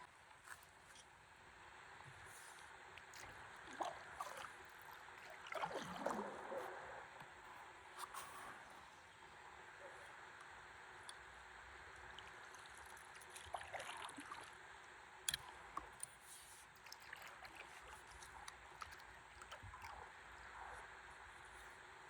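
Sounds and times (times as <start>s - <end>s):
water sloshing against a paddleboard: 2.0s - 10.2s, 12.0s - 14.6s, 15.3s - 22.0s.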